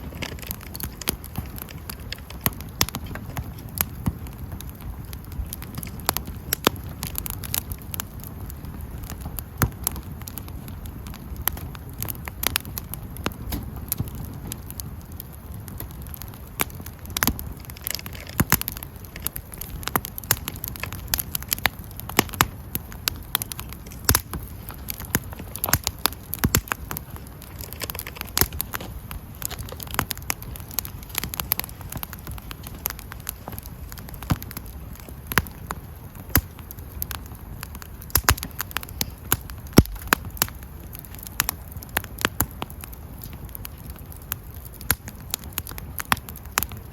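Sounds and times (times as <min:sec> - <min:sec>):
campfire crackling and popping: 0:00.0 - 0:46.9.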